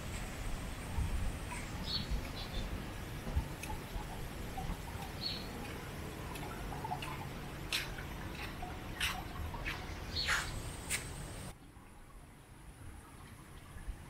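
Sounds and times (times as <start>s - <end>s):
birds chirping: 0.9s - 11.5s.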